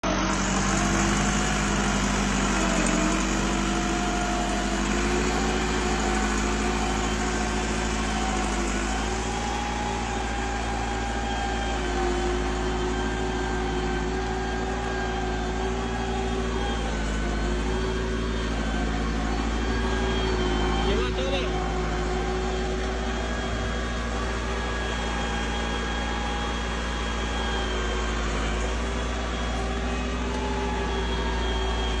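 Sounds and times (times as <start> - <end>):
tractor diesel engine under load: 0.0 - 32.0.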